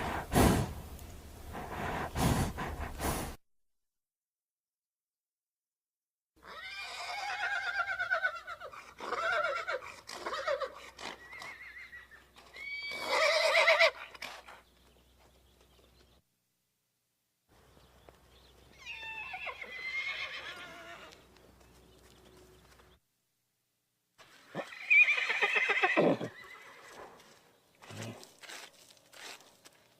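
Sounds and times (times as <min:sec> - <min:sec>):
horse whinnying: 0:06.4 - 0:14.4, 0:18.8 - 0:21.2, 0:24.5 - 0:27.0.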